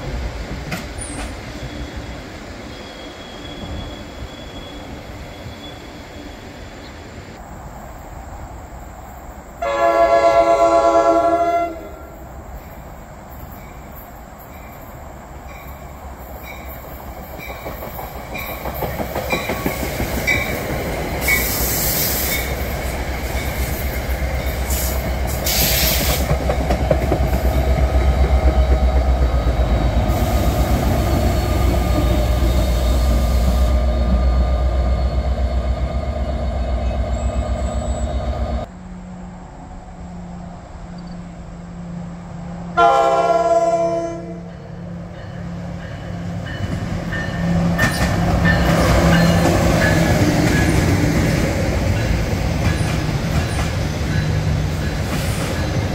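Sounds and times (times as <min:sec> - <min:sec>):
train passing on rails: 0:00.0 - 0:55.9
train horn: 0:09.6 - 0:12.2, 0:42.8 - 0:44.7
high hissing bursts: 0:21.2 - 0:26.3, 0:30.0 - 0:33.9.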